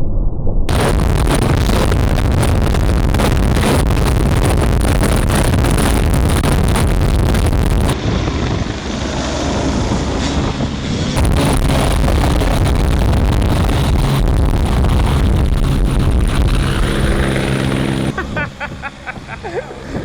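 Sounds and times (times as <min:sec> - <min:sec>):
wind buffeting on microphone: 0:00.7 - 0:08.8, 0:09.7 - 0:18.2
loud helicopter engine: 0:07.8 - 0:18.2.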